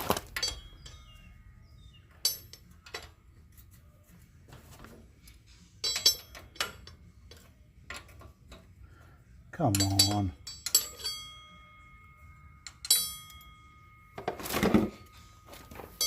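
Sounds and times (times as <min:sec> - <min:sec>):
hand tools clinking on metal: 0:00.0 - 0:01.4, 0:02.1 - 0:03.2, 0:05.4 - 0:08.7, 0:09.6 - 0:16.0.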